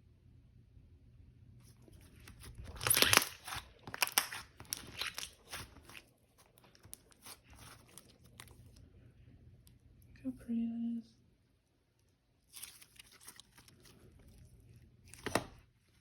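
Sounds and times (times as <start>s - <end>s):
slime squished by hand crackling: 2.0s - 8.8s.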